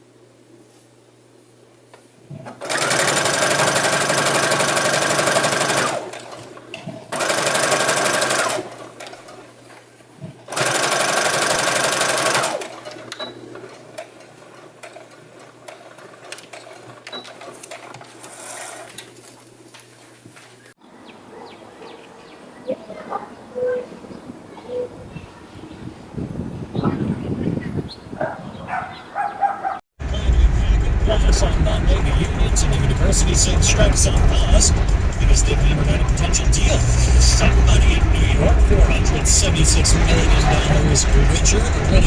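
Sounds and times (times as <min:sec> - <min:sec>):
electric sewing machine stitching: 0:02.5 - 0:06.3, 0:07.1 - 0:08.7, 0:10.5 - 0:12.8.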